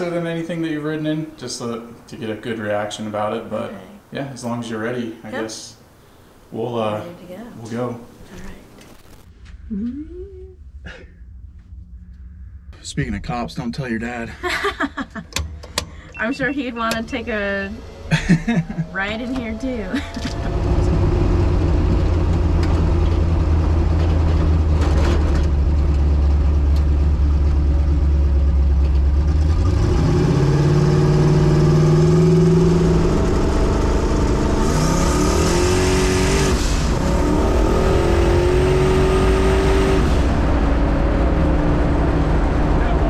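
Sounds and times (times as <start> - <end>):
truck engine accelerating: 9.4 - 43.0.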